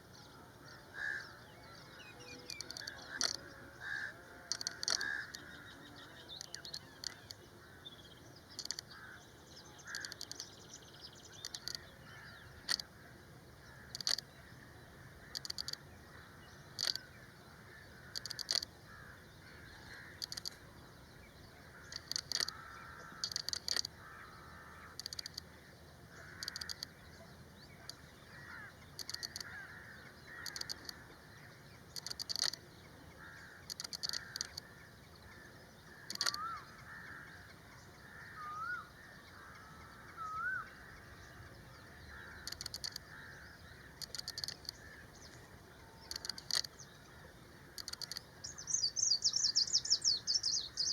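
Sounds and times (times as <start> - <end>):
birds chirping and twittering: 0.0 - 50.9
short sharp bird calls: 33.2 - 41.1.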